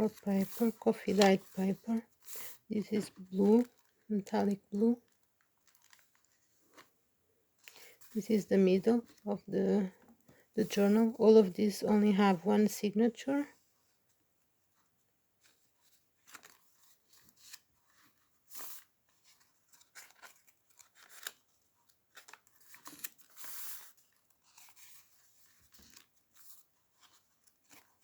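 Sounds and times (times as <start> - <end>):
paper pages rustling: 0.0 - 7.0, 15.4 - 28.0.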